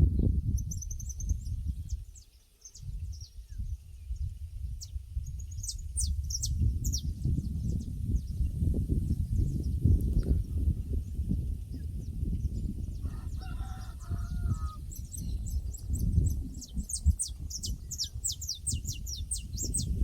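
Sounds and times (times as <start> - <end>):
small bird chirping: 0.5 - 10.3, 11.2 - 20.0
rooster crowing: 13.0 - 14.8.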